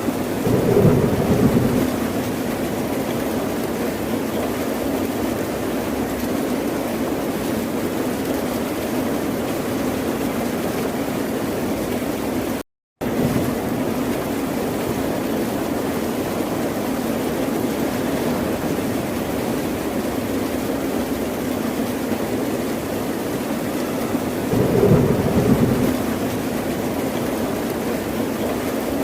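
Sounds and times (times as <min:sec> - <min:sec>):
ocean surf: 0:24.4 - 0:27.6.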